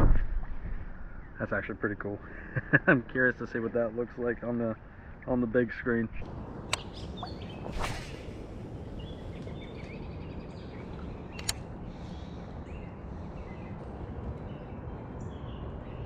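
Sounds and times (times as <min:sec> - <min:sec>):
songbird chirps: 0:01.0 - 0:16.0
creek rushing: 0:06.2 - 0:09.7
sharp click: 0:06.7 - 0:06.9, 0:11.3 - 0:11.7.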